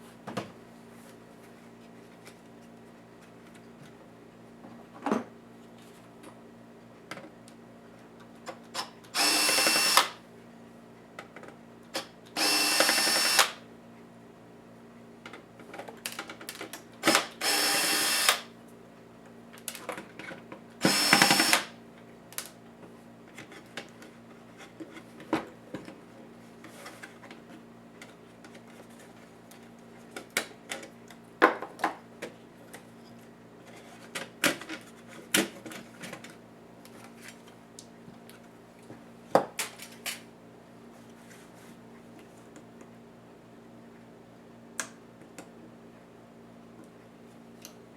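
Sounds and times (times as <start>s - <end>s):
electric screwdriver whirring: 9.2s - 10.2s, 12.4s - 13.6s, 17.0s - 18.5s, 20.8s - 21.7s
screws and plastic parts clicking: 20.9s - 21.6s.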